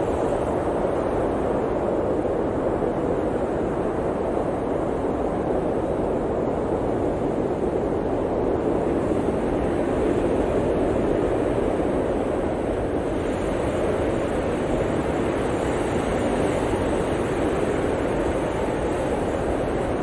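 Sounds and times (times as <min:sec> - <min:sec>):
blizzard wind rushing: 0:00.0 - 0:20.0.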